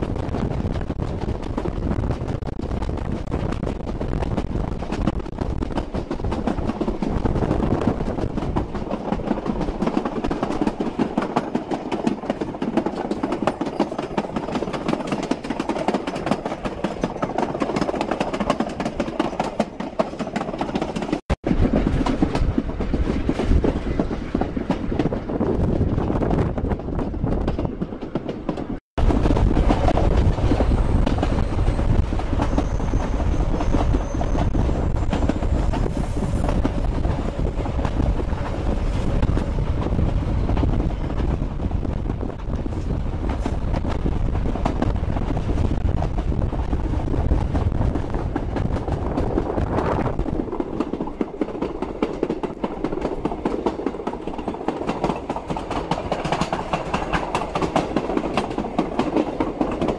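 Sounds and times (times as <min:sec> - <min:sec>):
train wheels clickety-clack: 0:00.0 - 0:59.9.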